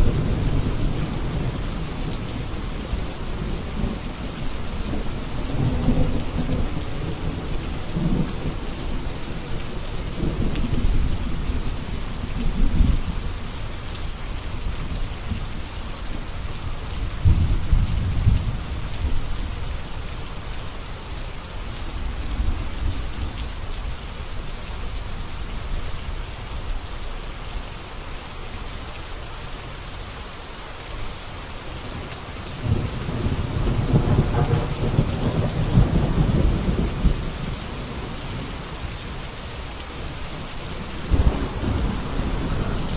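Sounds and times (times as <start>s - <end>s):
steady rain: 0.0s - 42.9s
thunder rumbling: 31.9s - 39.2s, 40.0s - 42.9s.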